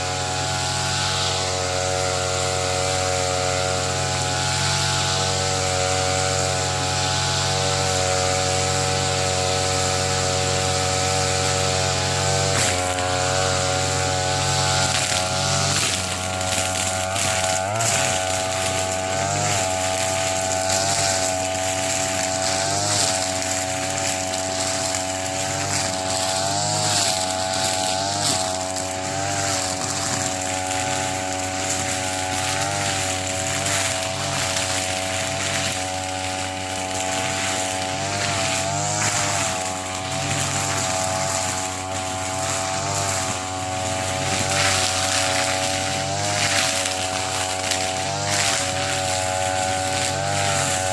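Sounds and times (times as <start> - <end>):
brush cutter cutting grass: 0.0 - 50.9.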